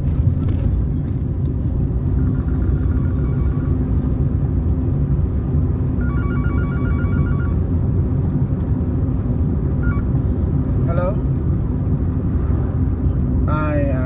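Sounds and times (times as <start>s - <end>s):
car road and engine noise: 0.0s - 14.0s
electronic ringtone beeps: 2.1s - 3.9s, 6.0s - 7.6s, 9.8s - 10.1s.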